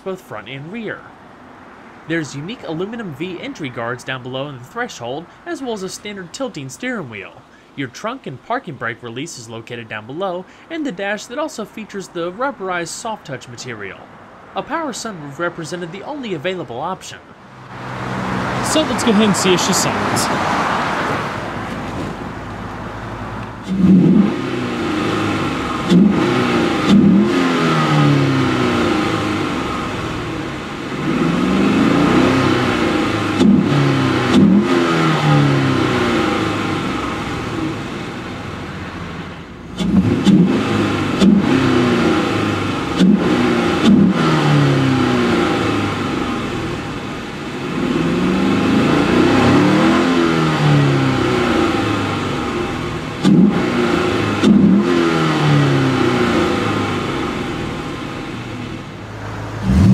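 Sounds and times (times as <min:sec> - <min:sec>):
car engine revving: 0:17.4 - 0:59.9.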